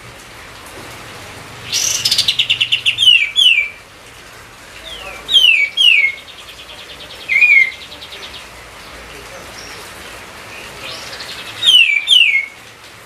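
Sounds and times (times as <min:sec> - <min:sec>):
bulbul singing: 0:01.6 - 0:03.8, 0:04.7 - 0:12.6.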